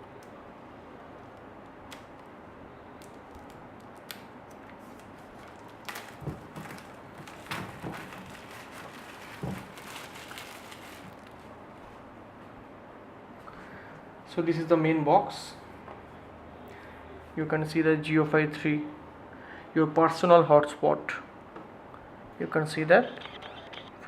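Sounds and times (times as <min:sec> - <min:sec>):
packaging being cut and handled: 0:03.0 - 0:11.4.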